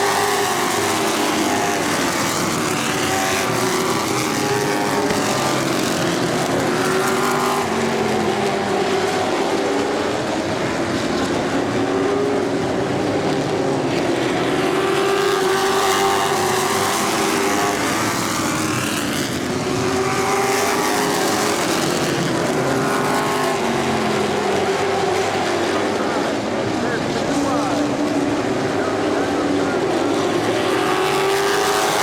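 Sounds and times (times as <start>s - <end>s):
race car engines: 0.0s - 32.0s.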